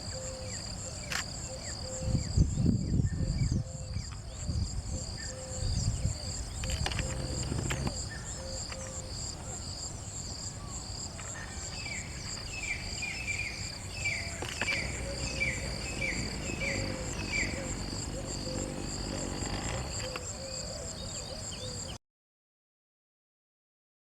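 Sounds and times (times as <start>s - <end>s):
insects chirping drone: 0.0s - 22.0s
low background rumble: 13.7s - 20.1s.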